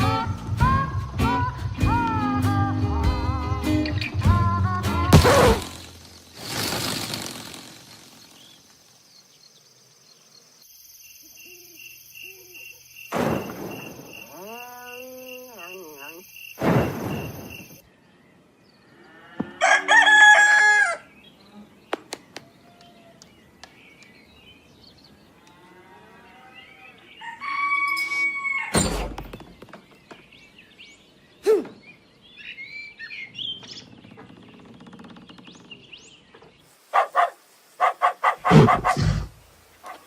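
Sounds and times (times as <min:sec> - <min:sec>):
animal calls: 0:14.2 - 0:16.3, 0:36.9 - 0:40.0.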